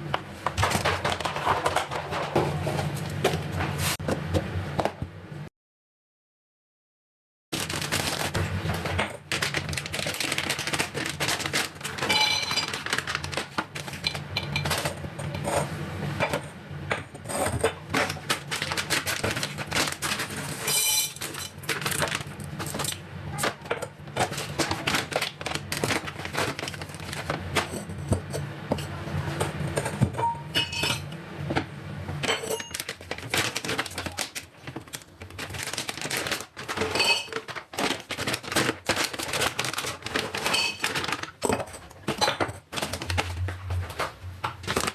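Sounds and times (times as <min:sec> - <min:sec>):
dishes and utensils clattering: 0:00.5 - 0:03.4, 0:11.5 - 0:31.2, 0:32.2 - 0:33.9, 0:36.0 - 0:43.2
steady low hum: 0:41.6 - 0:44.9.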